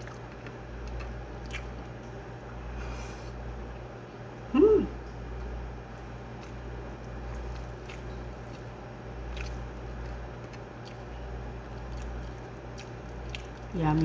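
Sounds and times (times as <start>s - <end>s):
person chewing: 0.0s - 2.1s, 6.0s - 13.7s
steady low hum: 0.0s - 14.0s.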